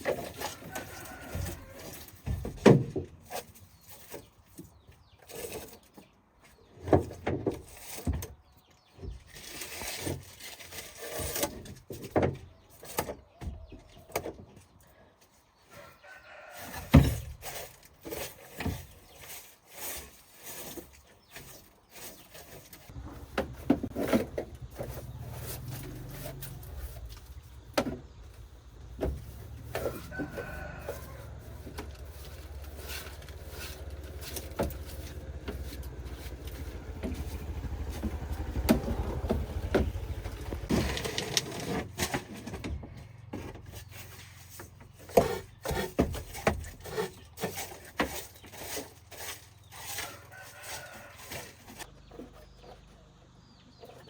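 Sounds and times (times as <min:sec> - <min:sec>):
rooster crowing: 0:00.5 - 0:02.0, 0:29.6 - 0:32.9, 0:49.9 - 0:51.8.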